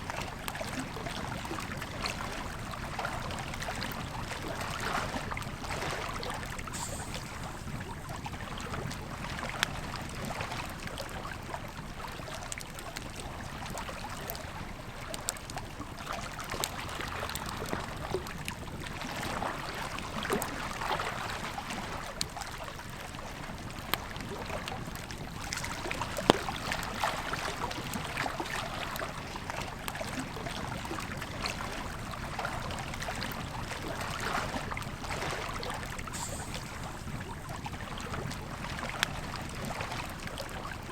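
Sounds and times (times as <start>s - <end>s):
campfire crackling and popping: 23.4s - 29.0s.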